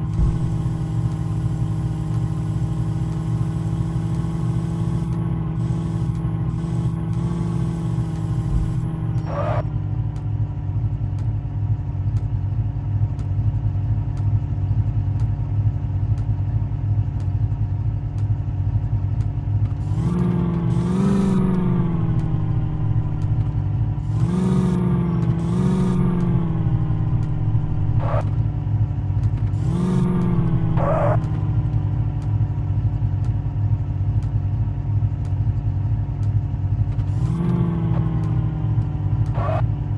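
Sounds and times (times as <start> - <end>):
tractor diesel engine revving: 0.0 - 9.6, 19.8 - 32.3, 36.9 - 39.9.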